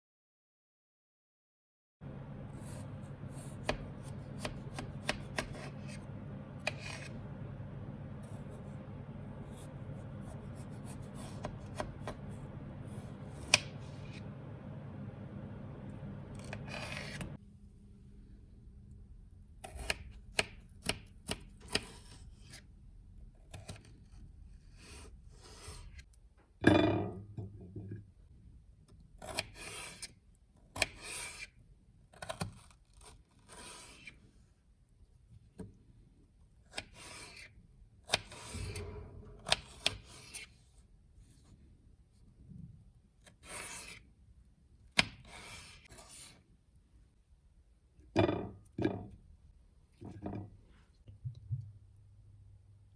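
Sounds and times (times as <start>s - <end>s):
scrapes and rubs: 8.2s - 14.3s.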